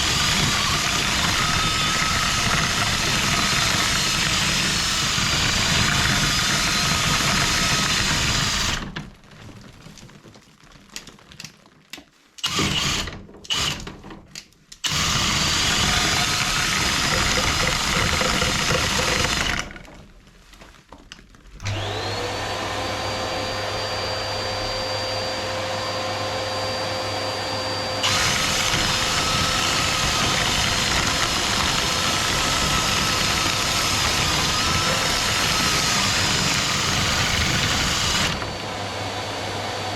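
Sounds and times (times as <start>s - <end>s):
loud electric motor running: 0.0s - 8.8s, 14.9s - 19.7s, 21.6s - 39.9s
motor whine spinning up: 21.6s - 39.9s.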